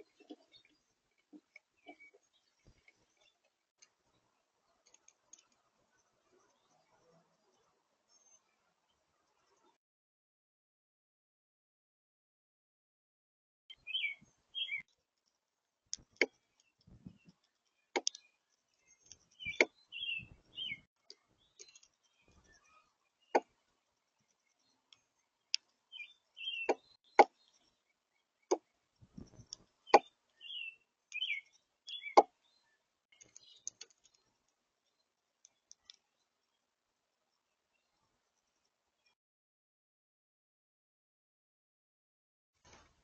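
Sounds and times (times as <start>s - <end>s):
birds chirping: 0.0s - 9.8s, 13.7s - 14.9s, 15.9s - 39.2s
sharp clicks and taps: 15.9s - 19.8s.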